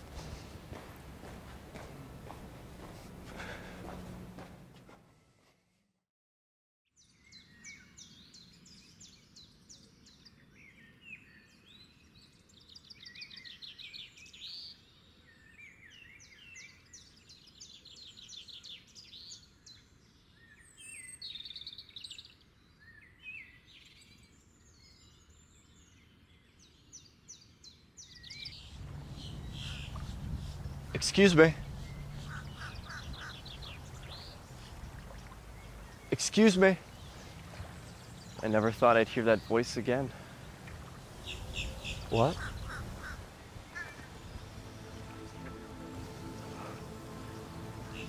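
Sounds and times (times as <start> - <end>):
songbirds chirping and trilling: 7.0 - 48.0
low outdoor rumble: 28.7 - 36.1.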